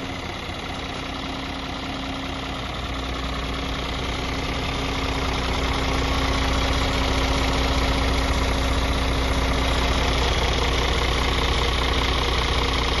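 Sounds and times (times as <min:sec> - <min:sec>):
truck diesel engine idling: 0:00.0 - 0:13.0.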